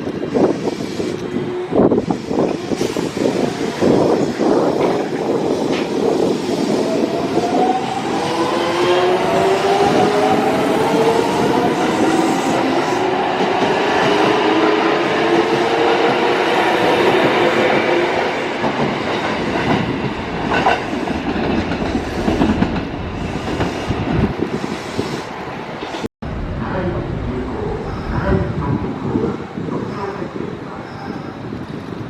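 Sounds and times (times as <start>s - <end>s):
train running noise: 0.0s - 32.0s.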